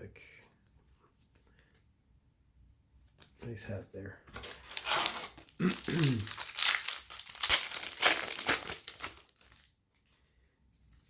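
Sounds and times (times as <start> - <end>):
wrapper tearing and crinkling: 4.4 - 9.8.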